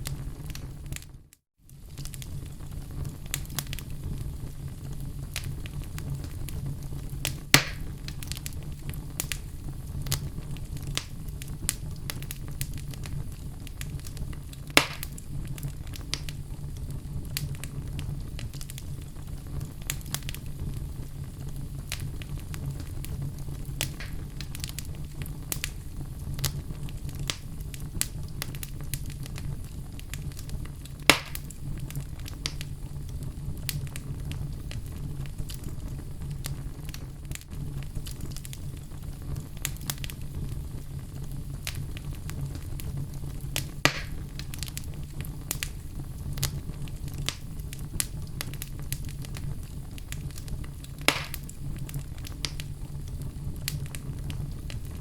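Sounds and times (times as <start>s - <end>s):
fire crackling: 0.0s - 55.0s
flame rumbling in fireplace: 0.0s - 55.0s
sharp wood pops: 7.6s - 7.8s, 14.8s - 15.1s, 23.8s - 24.2s, 31.1s - 31.4s, 43.8s - 44.2s, 51.1s - 51.5s.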